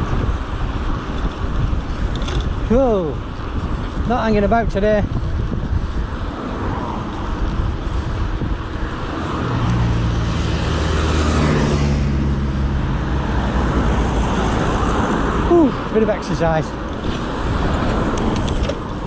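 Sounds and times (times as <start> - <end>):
steady rushing road noise: 0.0 - 19.0
car engine hum passing: 6.0 - 19.0.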